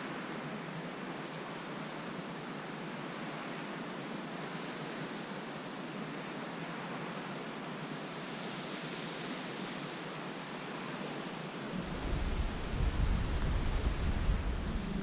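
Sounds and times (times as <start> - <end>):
wind: 0.0 - 15.0
wind buffeting microphone: 11.6 - 15.0.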